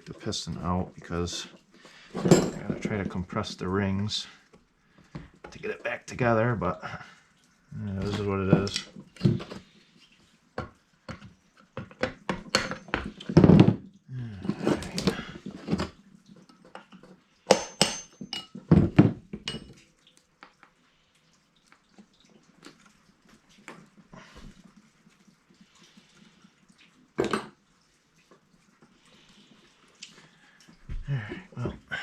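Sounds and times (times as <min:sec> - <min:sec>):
metal tools clanking on engine parts: 0:02.2 - 0:03.1.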